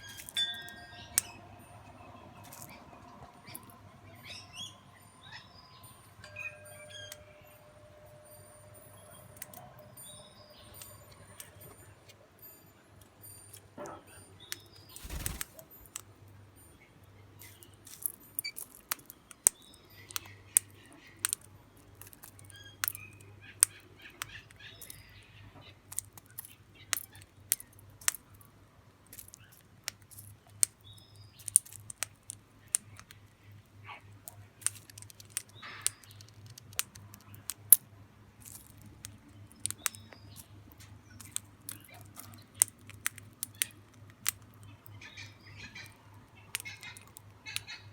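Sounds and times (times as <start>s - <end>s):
small birds flapping wings: 15.0s - 15.9s.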